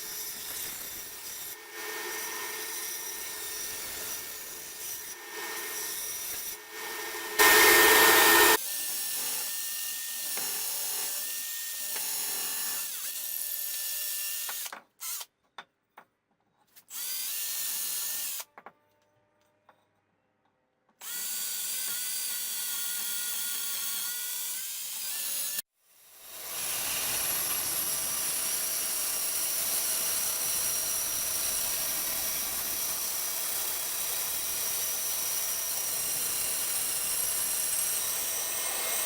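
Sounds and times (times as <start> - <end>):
power tools cutting wood: 0.0 - 15.2, 26.3 - 39.0.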